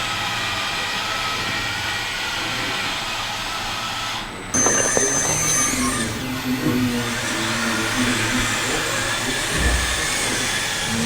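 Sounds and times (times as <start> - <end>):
small electric motors whining: 4.6 - 11.0.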